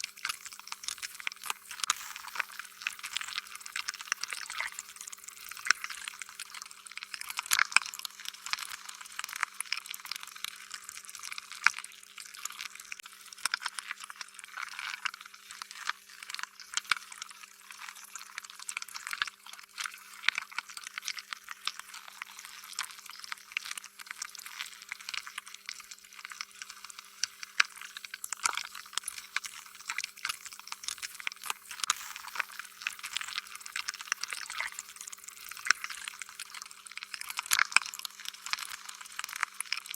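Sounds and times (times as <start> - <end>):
faint steady hum: 22.0 - 37.2.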